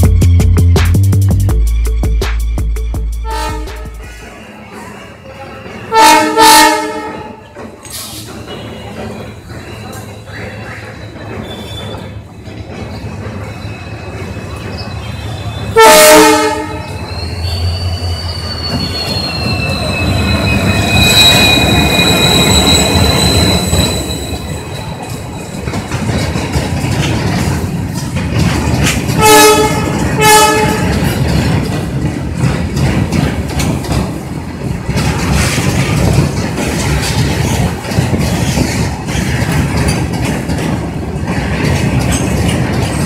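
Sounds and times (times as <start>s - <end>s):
train rumbling and clattering past: 0.0s - 43.0s
locomotive horn blasts: 3.2s - 4.1s, 5.9s - 7.4s, 15.7s - 17.0s, 29.2s - 31.1s
high steady wheel squeal: 7.9s - 12.2s, 12.9s - 26.0s.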